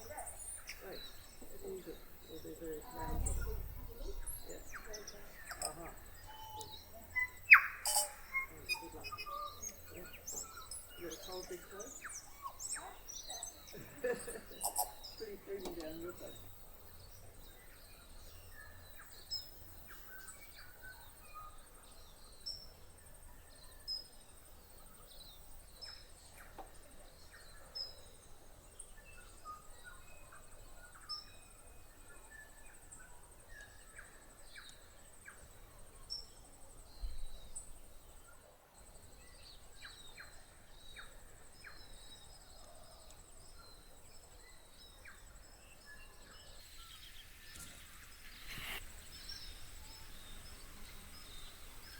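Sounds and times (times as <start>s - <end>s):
bird whistling and chirping: 3.0s - 10.8s.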